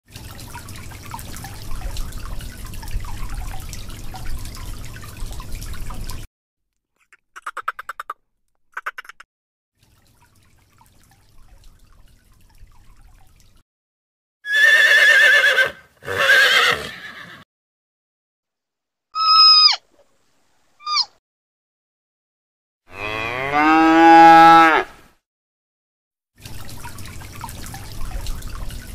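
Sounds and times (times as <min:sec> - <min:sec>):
quick pulsed animal call: 0:19.2 - 0:19.8
short falling animal call: 0:19.2 - 0:19.9
wavering whinny-like calls: 0:19.2 - 0:19.9, 0:20.8 - 0:21.1.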